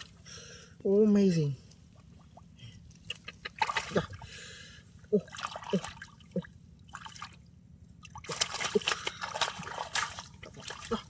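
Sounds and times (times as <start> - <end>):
muddy water splashing: 1.8 - 4.4, 5.0 - 11.0.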